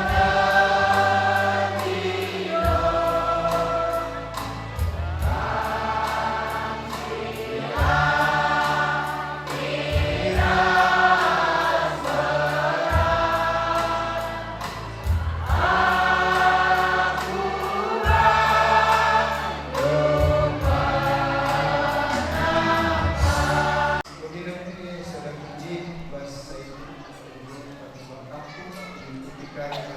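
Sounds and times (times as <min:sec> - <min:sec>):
group of voices singing: 0:00.0 - 0:24.1
sustained bass notes: 0:15.6 - 0:24.0.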